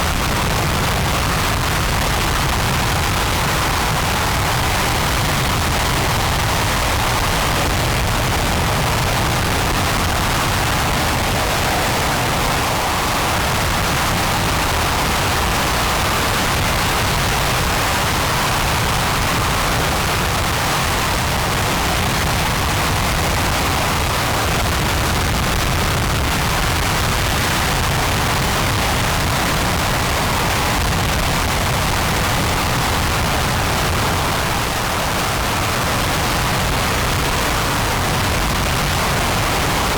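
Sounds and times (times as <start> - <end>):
rocket engine roaring: 0.0 - 22.4.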